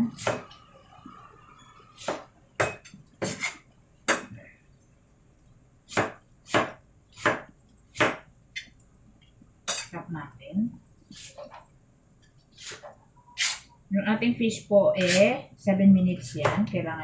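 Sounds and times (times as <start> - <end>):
knife chopping on cutting board: 5.9 - 8.2.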